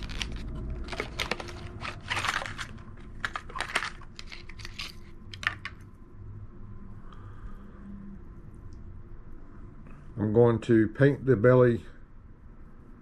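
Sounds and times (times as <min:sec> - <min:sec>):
plastic packaging crackling: 0:00.0 - 0:05.8.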